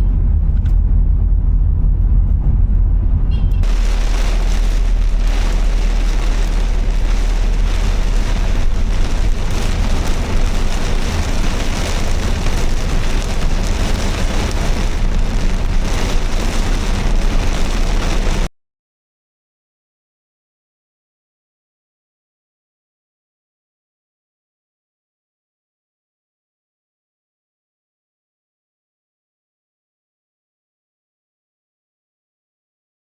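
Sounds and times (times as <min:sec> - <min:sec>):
car road and engine rumble: 0:00.0 - 0:18.5
rain and wet tyres hiss: 0:03.6 - 0:18.5.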